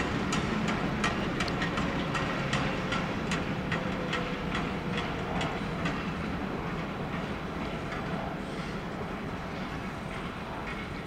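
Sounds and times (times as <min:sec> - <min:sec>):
wagon wheels clicking over rail joints: 0:00.0 - 0:08.0
freight train rumbling: 0:00.0 - 0:11.0.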